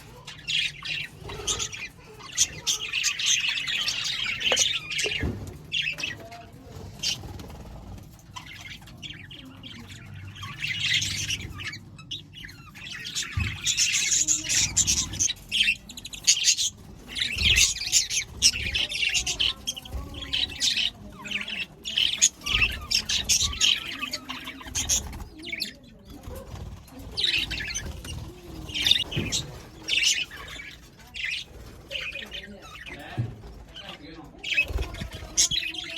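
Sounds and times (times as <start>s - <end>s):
budgerigars chattering and chirping: 0.0s - 35.9s.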